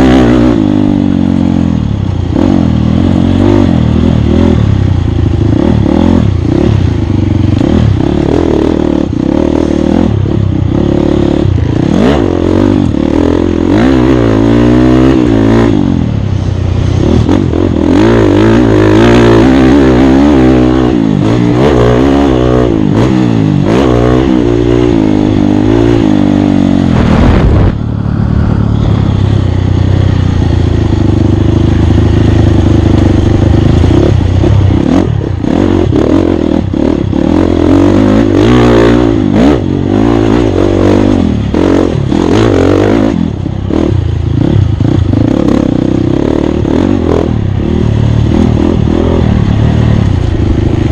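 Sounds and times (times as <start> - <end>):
motorcycle engine revving: 0.0 - 50.9
motorcycle rattling and clatter: 0.0 - 50.9.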